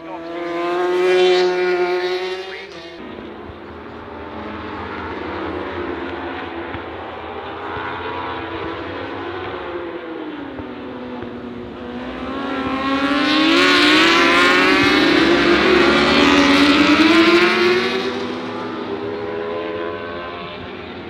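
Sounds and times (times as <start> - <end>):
racing motorcycles passing at high revs: 0.0 - 21.0.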